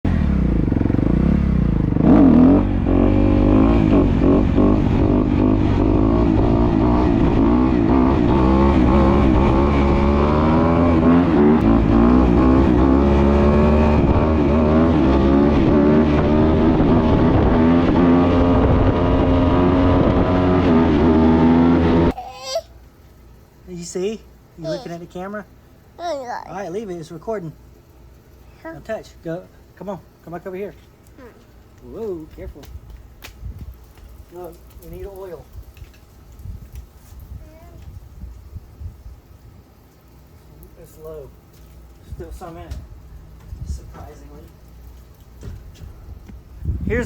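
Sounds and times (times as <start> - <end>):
dirt bike engine running: 0.0 - 22.1.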